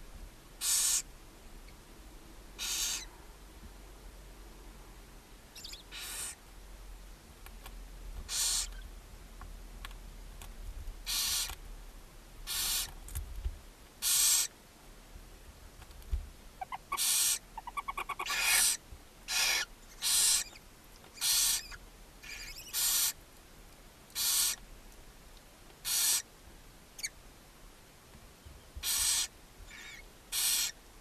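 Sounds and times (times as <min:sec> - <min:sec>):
owl nestlings rasping hiss calls: 0:00.6 - 0:01.1, 0:02.6 - 0:03.1, 0:05.6 - 0:06.4, 0:08.3 - 0:08.8, 0:11.0 - 0:11.6, 0:12.4 - 0:13.0, 0:14.0 - 0:14.6, 0:16.6 - 0:23.2, 0:24.1 - 0:24.6, 0:25.8 - 0:26.3, 0:27.0 - 0:27.2, 0:28.8 - 0:30.8
ticking chittering bird calls: 0:00.6 - 0:01.1, 0:02.6 - 0:03.1, 0:05.6 - 0:06.4, 0:08.3 - 0:08.8, 0:11.1 - 0:11.6, 0:12.5 - 0:13.0, 0:14.0 - 0:14.5, 0:16.6 - 0:23.2, 0:24.1 - 0:24.6, 0:25.8 - 0:26.3, 0:28.8 - 0:30.8.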